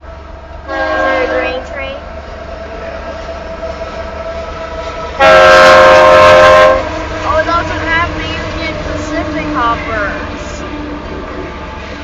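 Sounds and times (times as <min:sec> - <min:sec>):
train rumble: 0:00.0 - 0:12.0
locomotive air horn chord: 0:00.7 - 0:01.8, 0:05.2 - 0:07.4.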